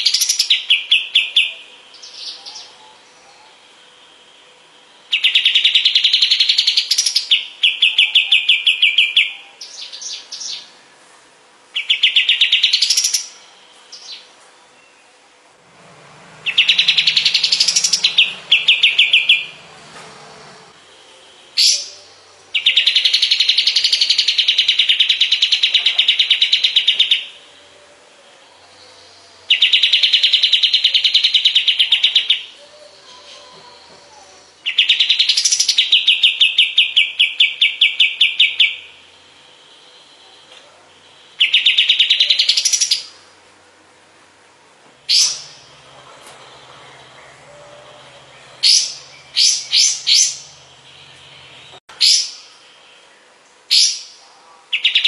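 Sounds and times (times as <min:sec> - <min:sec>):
bird upward-sweeping notes: 0:15.7 - 0:24.9
bird rattling trills: 0:16.4 - 0:20.7.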